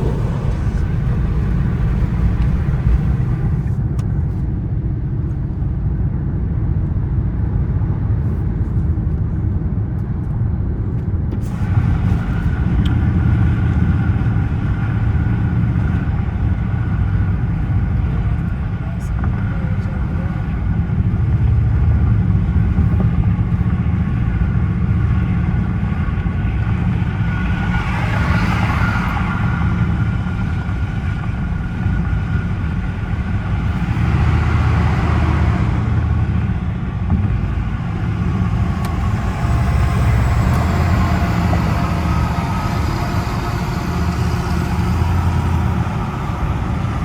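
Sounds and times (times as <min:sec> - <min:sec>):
rushing noise: 0:00.0 - 0:03.8, 0:26.3 - 0:31.8, 0:33.4 - 0:47.0
car engine droning: 0:00.0 - 0:04.4, 0:10.9 - 0:47.0
road and tyre noise: 0:00.0 - 0:47.0.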